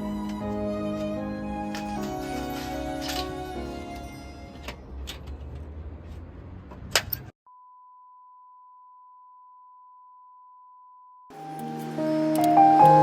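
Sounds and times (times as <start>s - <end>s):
keyboard music: 0.0s - 4.7s, 11.3s - 13.0s.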